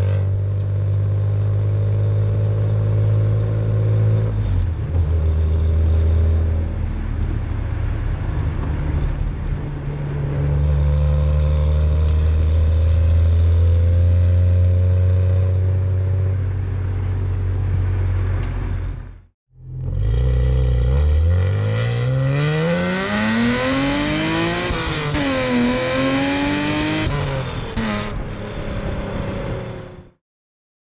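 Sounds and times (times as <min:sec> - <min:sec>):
car engine accelerating: 0:00.0 - 0:30.2.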